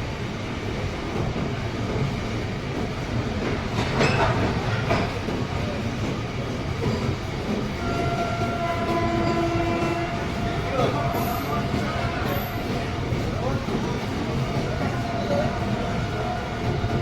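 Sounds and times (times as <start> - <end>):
train rumbling on rails: 0.0 - 17.0
train wheel clacks: 0.6 - 17.0
train horn tones: 7.8 - 13.3, 14.7 - 17.0.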